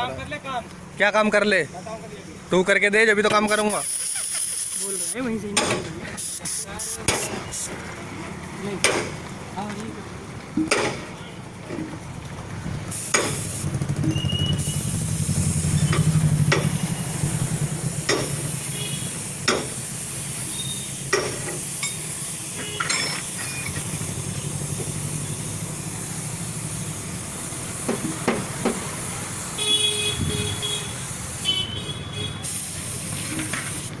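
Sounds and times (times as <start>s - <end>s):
steady hiss: 3.3s - 5.5s, 6.2s - 7.8s, 12.9s - 13.7s, 14.6s - 34.0s
sharp clicks and knocks: 5.5s - 5.9s, 8.8s - 9.8s, 10.5s - 12.0s, 13.1s - 13.4s, 15.9s - 16.8s, 18.0s - 18.4s, 19.4s - 19.8s, 21.1s - 22.0s, 27.8s - 28.9s
low motor hum: 13.6s - 18.5s.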